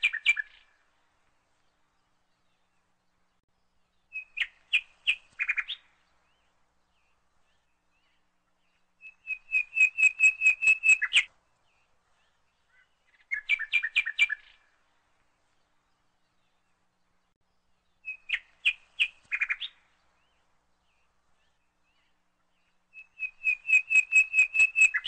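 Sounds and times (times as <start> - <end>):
bird chirping rapidly: 9.0 - 11.3, 23.0 - 25.0.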